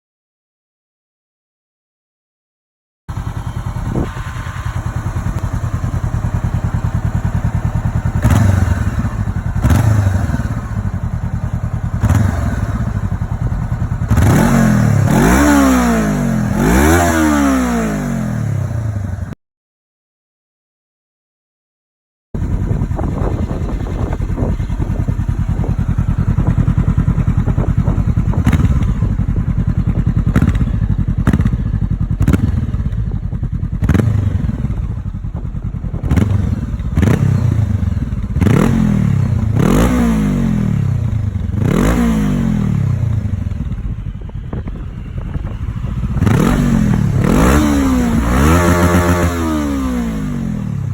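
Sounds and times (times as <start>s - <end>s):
sharp exhaust cracks: 3.1s - 17.2s, 22.4s - 40.0s
motorcycle engine idling and revving: 3.1s - 19.4s, 22.4s - 50.9s.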